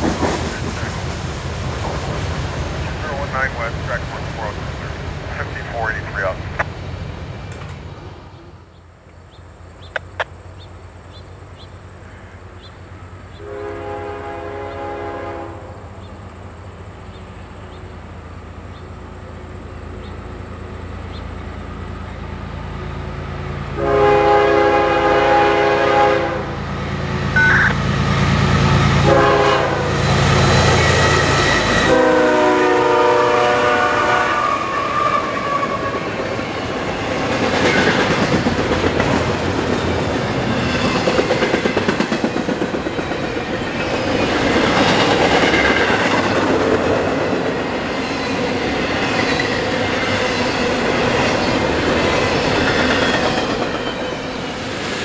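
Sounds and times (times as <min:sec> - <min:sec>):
freight cars rumbling by: 0:00.0 - 0:13.4
train horn blasts: 0:13.4 - 0:15.8, 0:23.7 - 0:26.6, 0:28.6 - 0:36.1.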